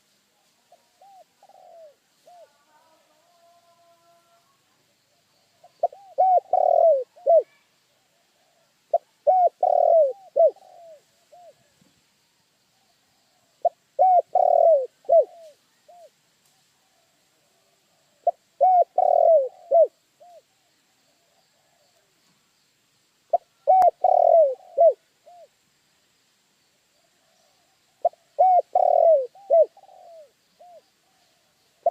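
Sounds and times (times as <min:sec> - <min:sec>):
dove cooing: 0:00.7 - 0:02.9, 0:05.6 - 0:11.7, 0:13.4 - 0:16.2, 0:17.0 - 0:20.6, 0:23.3 - 0:25.5, 0:27.2 - 0:31.9.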